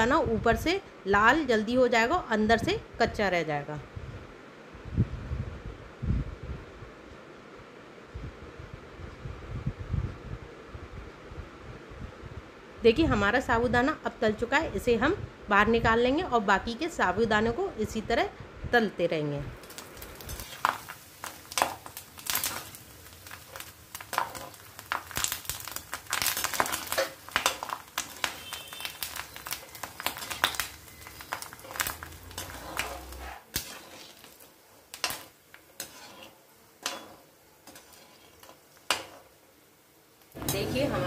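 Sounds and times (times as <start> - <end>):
sago crackling in hot oil: 0.0 - 2.8, 19.5 - 41.0
metal skimmer scraping pan: 26.4 - 34.4, 35.0 - 39.3.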